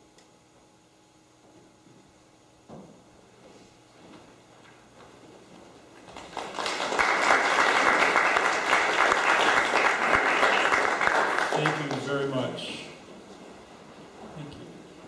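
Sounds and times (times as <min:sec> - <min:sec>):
audience applauding: 0:06.0 - 0:12.5.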